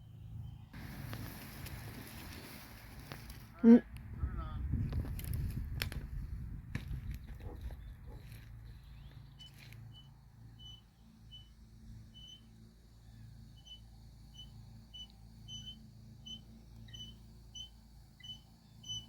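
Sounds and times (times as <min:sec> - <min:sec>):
faint high-pitched chirps: 0:09.4 - 0:19.0.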